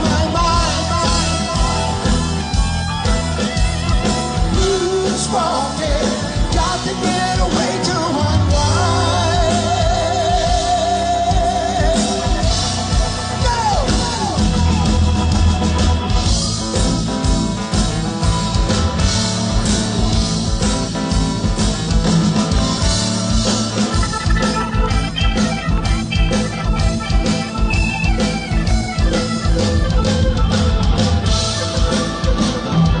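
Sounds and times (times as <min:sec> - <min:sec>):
bass guitar: 0:00.0 - 0:33.0
drums: 0:00.0 - 0:33.0
electric lead guitar: 0:00.0 - 0:33.0.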